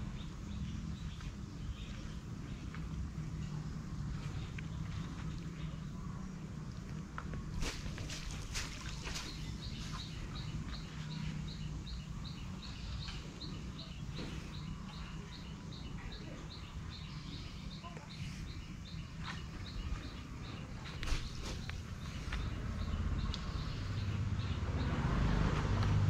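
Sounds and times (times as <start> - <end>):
low outdoor rumble: 0.0 - 26.0
bird chirping: 7.6 - 25.0.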